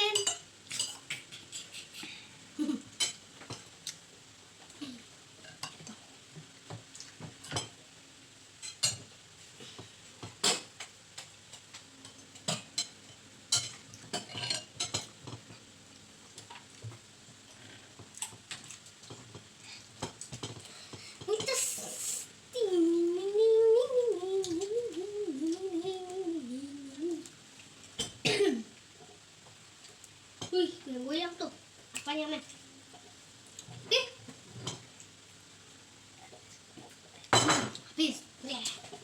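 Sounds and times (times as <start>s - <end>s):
cutlery clinking on a plate: 12.1s - 15.4s, 37.3s - 37.8s.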